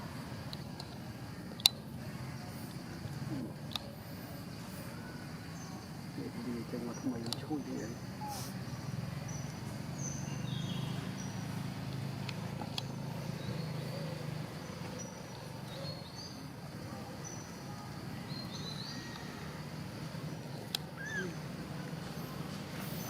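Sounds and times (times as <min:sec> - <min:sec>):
steady low hum: 0:00.0 - 0:23.0
faint clicks: 0:07.2 - 0:07.5.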